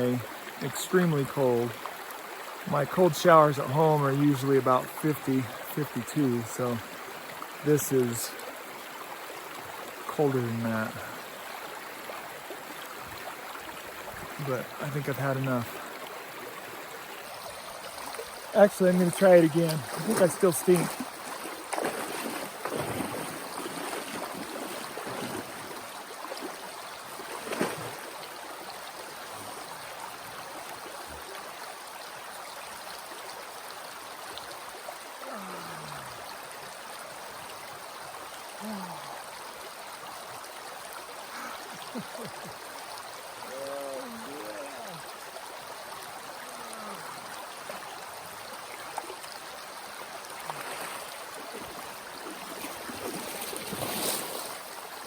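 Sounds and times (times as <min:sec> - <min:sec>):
river running: 0:00.0 - 0:55.0
sharp splash: 0:19.5 - 0:26.6, 0:27.2 - 0:28.1, 0:52.2 - 0:54.7
person making short vocal sounds: 0:35.2 - 0:36.2, 0:38.6 - 0:39.2, 0:43.4 - 0:45.0.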